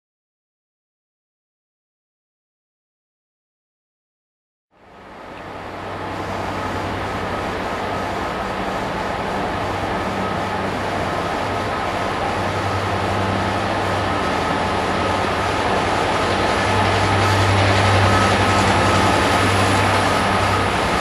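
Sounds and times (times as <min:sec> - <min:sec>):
train rail rumble: 0:04.8 - 0:21.0.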